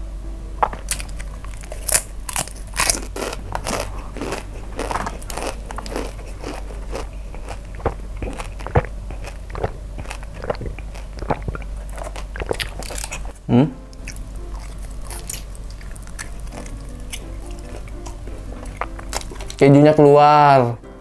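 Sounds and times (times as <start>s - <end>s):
person chewing crunchy food: 0.6s - 19.6s
throat sound: 9.5s - 12.7s, 13.4s - 13.8s.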